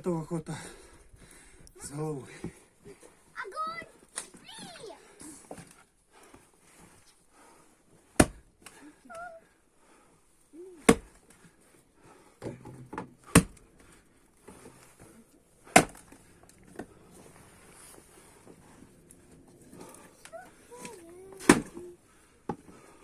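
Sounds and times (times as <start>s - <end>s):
splitting maul chopping wood: 8.1s - 8.4s, 10.8s - 11.2s, 12.9s - 13.6s, 15.6s - 16.1s, 21.4s - 21.8s.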